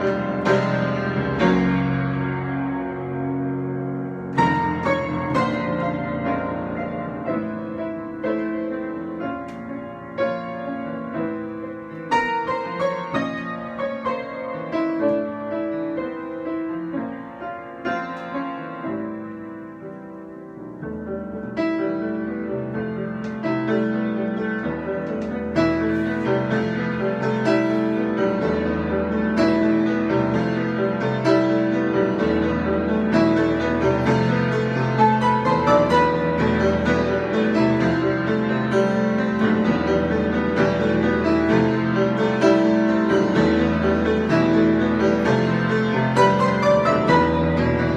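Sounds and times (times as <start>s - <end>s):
solo piano: 0.0s - 47.9s.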